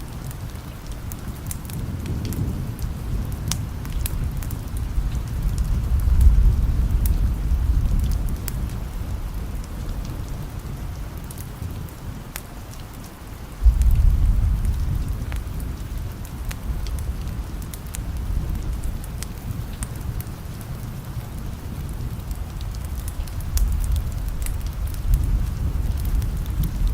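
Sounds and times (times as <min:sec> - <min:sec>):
steady rain: 0:00.0 - 0:26.9
thunder rolling: 0:01.8 - 0:10.6, 0:13.6 - 0:20.2, 0:21.7 - 0:26.9.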